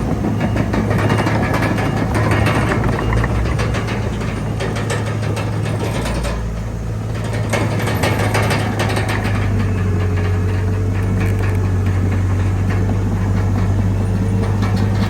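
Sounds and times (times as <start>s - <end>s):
metallic clanking: 0.0s - 6.6s
bulldozer diesel engine droning: 0.0s - 15.0s.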